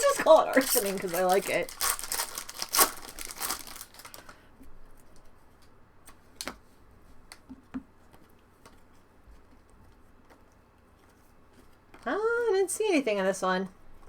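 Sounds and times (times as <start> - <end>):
foil wrapper crinkling: 0.0 - 4.5.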